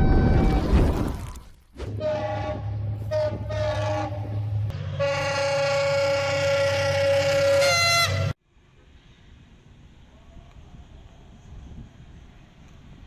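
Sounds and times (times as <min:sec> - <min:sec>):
locomotive horn blasts: 0:01.9 - 0:08.4.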